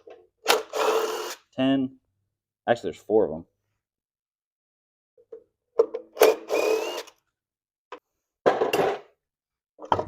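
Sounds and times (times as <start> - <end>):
power tool spinning: 0.5 - 1.4, 6.2 - 7.2.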